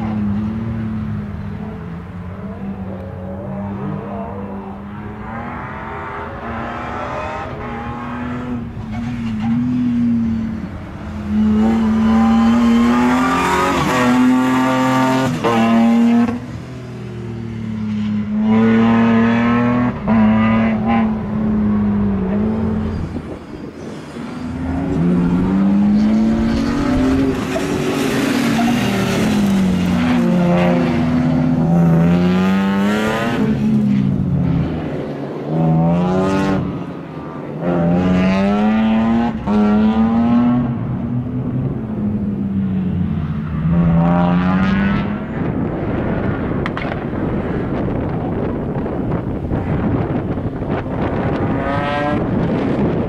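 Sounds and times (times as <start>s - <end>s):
wind rushing on microphone: 19.1s - 35.1s, 44.6s - 53.0s.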